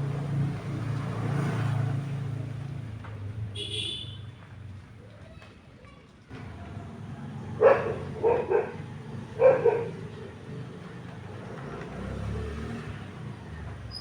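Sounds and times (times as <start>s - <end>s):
dog barking: 7.6s - 10.2s.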